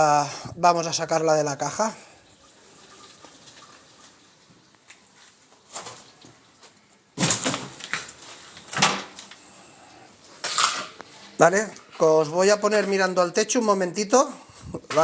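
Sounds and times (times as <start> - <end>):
rustling and scraping: 2.4 - 9.6, 10.2 - 13.3.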